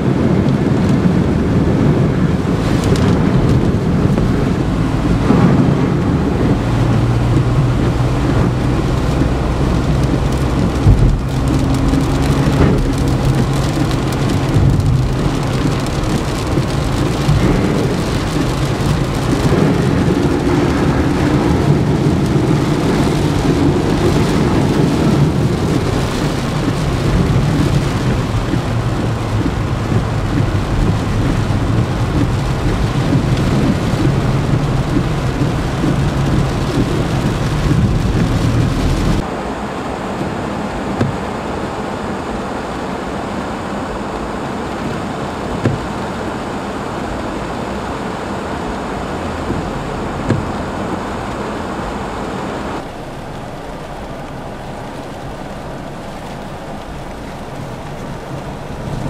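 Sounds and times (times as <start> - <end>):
low rumble: 0.0 - 39.7
heavy rain falling: 0.0 - 59.0.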